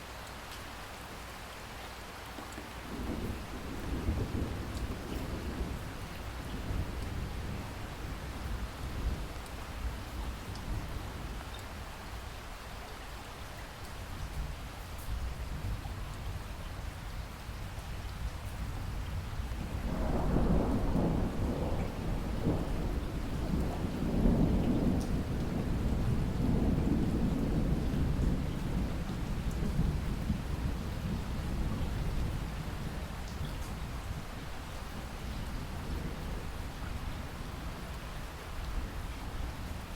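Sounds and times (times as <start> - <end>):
steady rain: 0.0 - 39.9
rolling thunder: 2.9 - 9.3, 19.0 - 34.3.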